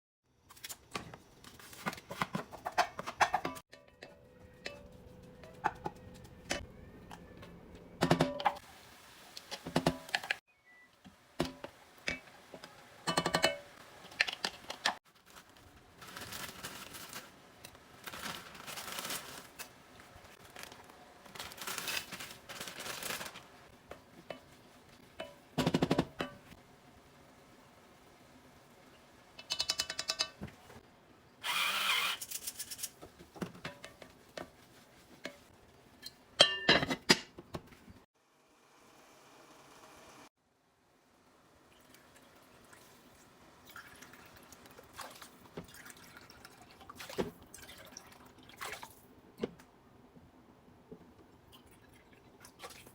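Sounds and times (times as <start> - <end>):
rustling and scraping: 0.5 - 3.6, 14.5 - 25.0.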